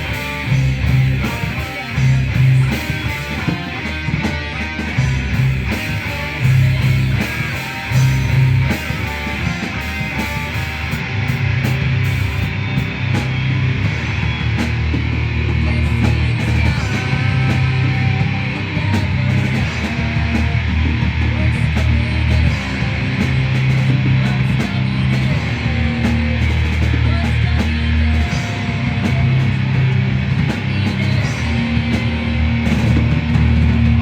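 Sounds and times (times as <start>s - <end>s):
low bass notes: 0.0s - 34.0s
rock band playing: 0.0s - 34.0s.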